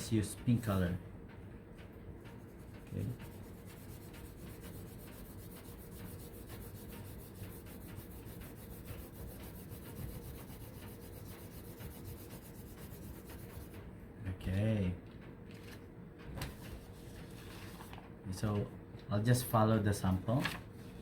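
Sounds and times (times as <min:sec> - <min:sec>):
crayon rubbing on paper: 0:02.5 - 0:13.8.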